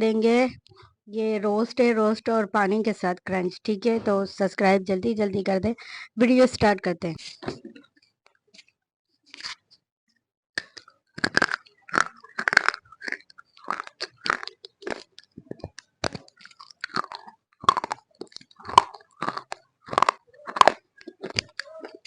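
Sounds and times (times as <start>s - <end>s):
crunching and chewing clay: 10.6s - 22.0s.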